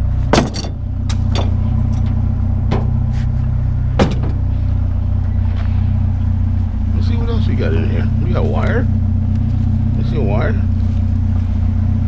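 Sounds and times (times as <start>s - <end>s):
vehicle engine idling: 0.0s - 12.0s
metal tools clanking in a box: 0.4s - 2.2s.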